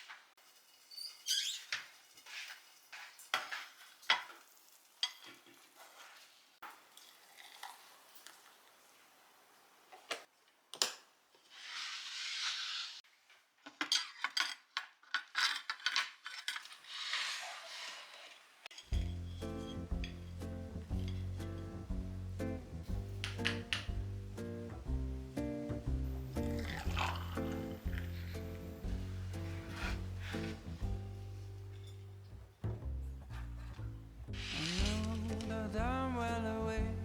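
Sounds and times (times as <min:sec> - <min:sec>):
utensils and dishes clinking: 0:18.7 - 0:21.9, 0:23.2 - 0:24.0, 0:25.6 - 0:31.0.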